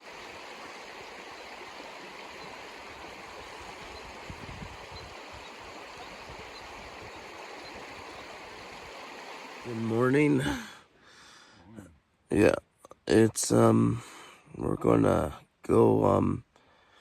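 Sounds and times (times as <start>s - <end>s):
creek rushing: 0.0s - 10.8s.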